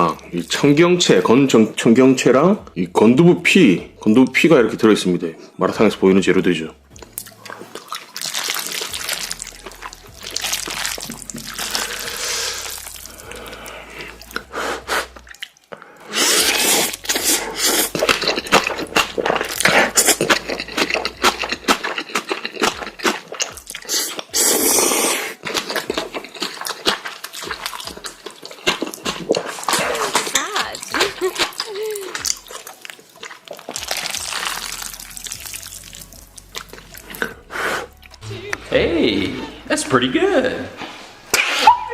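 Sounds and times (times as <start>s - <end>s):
noodles slurped and chewed: 7.0s - 38.2s.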